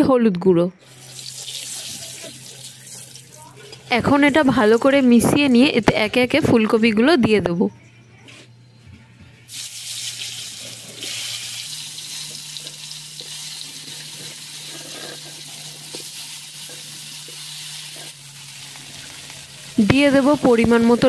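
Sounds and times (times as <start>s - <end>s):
vegetables sizzling in hot oil: 0.8s - 5.0s, 9.5s - 21.0s.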